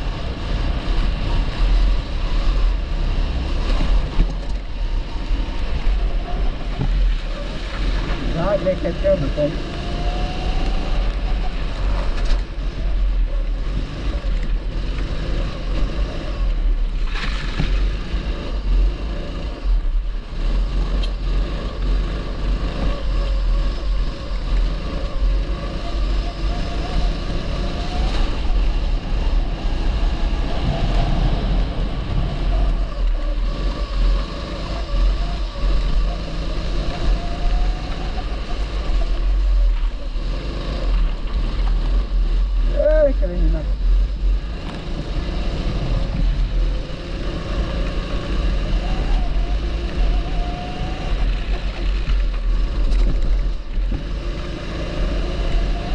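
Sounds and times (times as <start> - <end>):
kart engine running hard: 0.0 - 55.9
wind buffeting microphone: 26.7 - 41.2.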